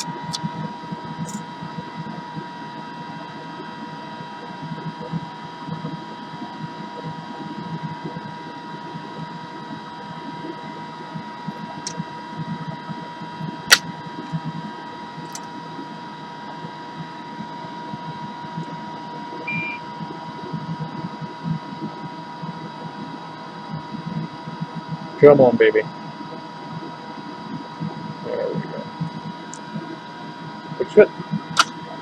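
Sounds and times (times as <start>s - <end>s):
constant whine: 0.0s - 32.0s
hot air station and fan whirring: 0.0s - 32.0s
sharp click: 31.6s - 31.8s.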